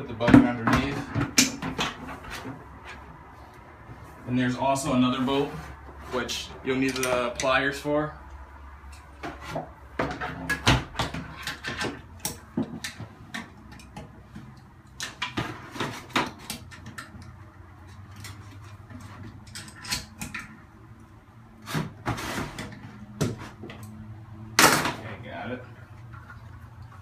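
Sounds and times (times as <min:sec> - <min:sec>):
pliers clicking and scraping metal: 0:16.4 - 0:20.5.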